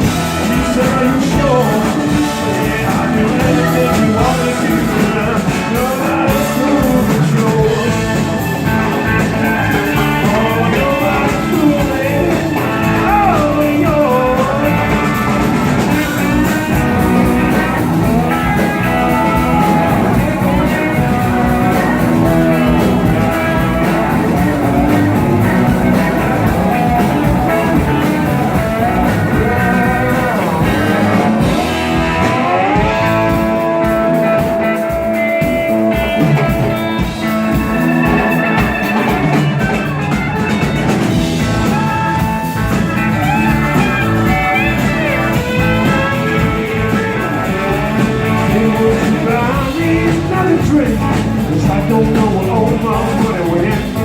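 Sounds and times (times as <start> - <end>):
bass guitar: 0.0 - 54.0
drums: 0.0 - 54.0
lead guitar: 0.0 - 54.0.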